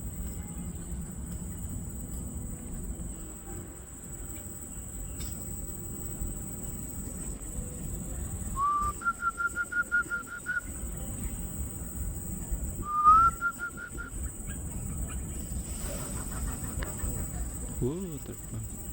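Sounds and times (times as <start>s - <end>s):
whistled call: 8.5s - 11.0s, 12.8s - 14.3s.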